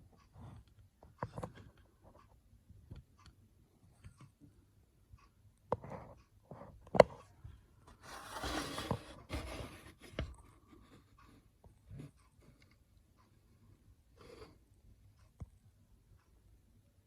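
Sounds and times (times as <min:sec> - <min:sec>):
rustling or scraping: 0:07.9 - 0:10.2.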